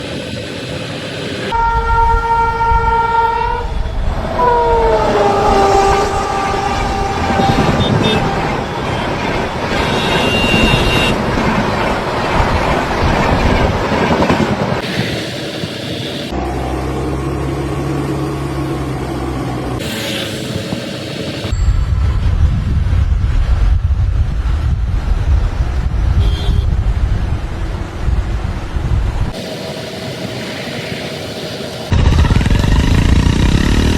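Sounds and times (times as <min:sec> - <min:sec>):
loud horn blast: 0:01.5 - 0:09.1, 0:09.7 - 0:11.2, 0:26.2 - 0:26.8
loud rumbling clatter: 0:31.9 - 0:33.9.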